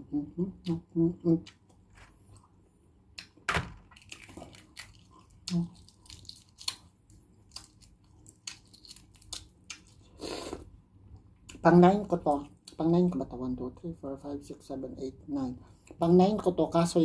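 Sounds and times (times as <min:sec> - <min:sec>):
wet clicks and chewing: 0:03.1 - 0:10.0.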